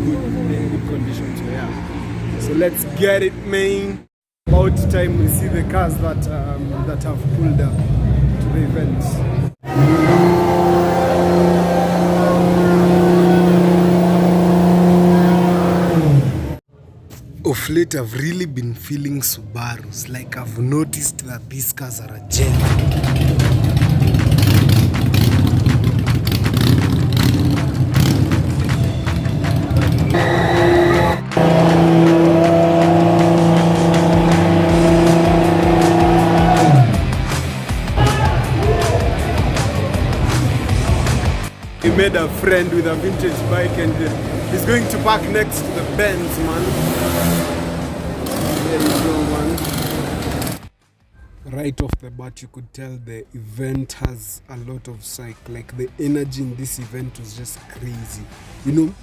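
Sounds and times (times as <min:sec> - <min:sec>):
car engine at steady revs: 0:09.8 - 0:16.6, 0:30.1 - 0:36.7, 0:43.0 - 0:50.6
music playing: 0:22.3 - 0:46.6.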